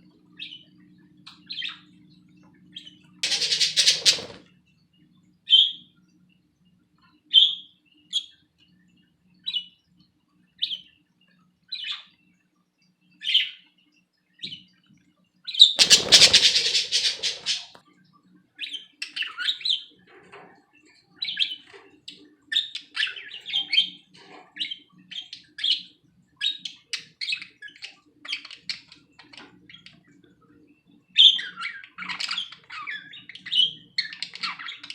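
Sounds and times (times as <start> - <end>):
budgies chirping: 3.2 - 4.4, 15.6 - 17.8.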